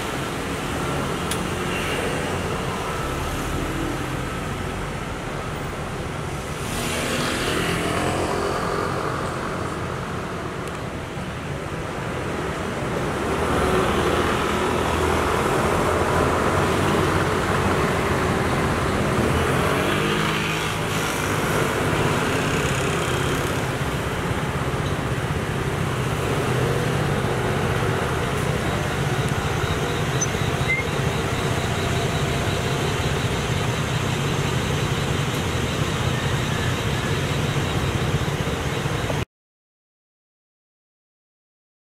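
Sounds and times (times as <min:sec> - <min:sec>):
vehicle engines running: 0:12.4 - 0:39.2.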